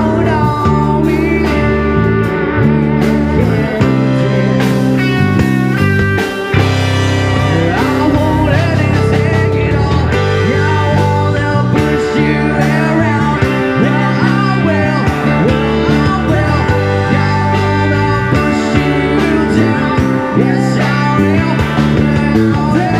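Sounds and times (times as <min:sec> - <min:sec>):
electric guitar lead bending pitch: 0:00.0 - 0:22.9
live rock band playing: 0:00.0 - 0:22.9.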